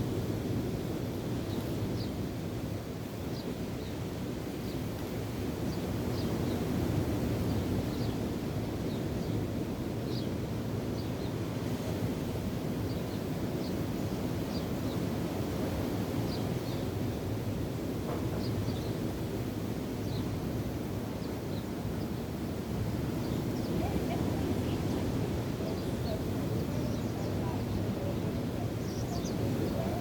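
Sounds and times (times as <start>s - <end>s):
waves rushing: 0.0s - 30.0s
wind on microphone: 0.0s - 30.0s
small birds chirping: 12.8s - 15.2s, 18.2s - 19.2s, 20.0s - 30.0s.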